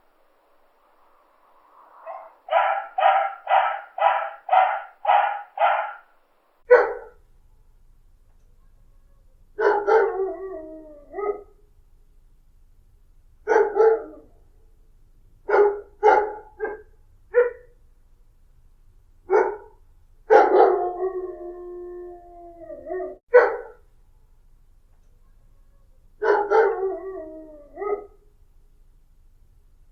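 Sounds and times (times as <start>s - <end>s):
dog howling: 2.0s - 6.1s, 20.4s - 23.2s, 26.3s - 28.1s
dog barking: 2.0s - 7.2s, 9.6s - 10.2s, 11.2s - 11.5s, 13.5s - 14.4s, 15.5s - 17.8s, 19.3s - 21.0s, 23.2s - 23.8s, 26.2s - 26.8s, 27.8s - 28.2s.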